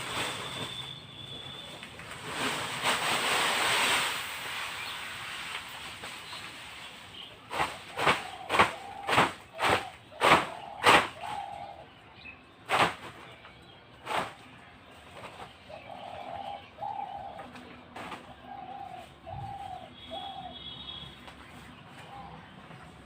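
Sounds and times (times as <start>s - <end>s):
pigeons cooing: 7.5s - 12.0s, 15.2s - 20.7s.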